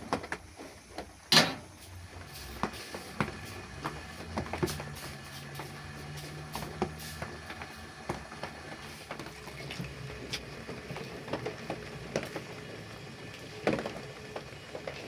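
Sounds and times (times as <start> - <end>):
steady hiss: 0.5 - 7.9.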